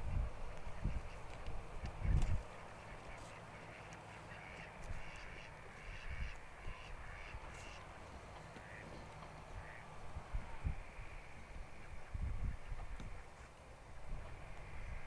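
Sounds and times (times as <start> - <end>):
wind rumble: 0.0 - 3.2, 9.5 - 15.0
wind knocking on microphone: 0.8 - 2.4
faint harsh bird calls: 1.9 - 13.6.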